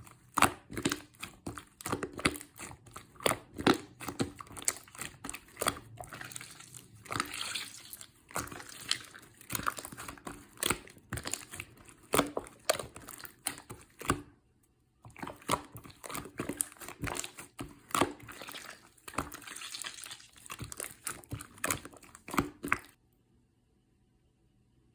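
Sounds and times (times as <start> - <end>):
crinkling handling noises: 15.0 - 23.0.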